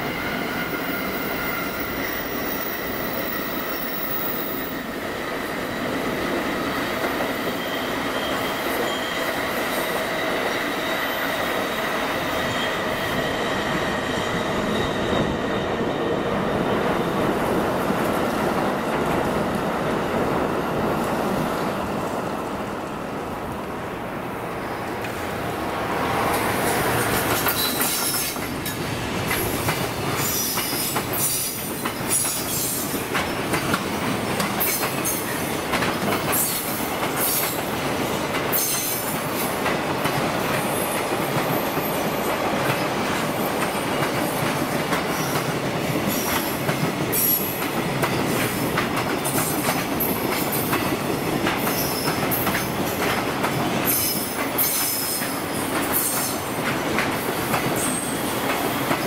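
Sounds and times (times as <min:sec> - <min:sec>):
freight train wheels rumbling: 0:00.0 - 0:59.0
high-pitched wheel squeals: 0:07.4 - 0:15.8.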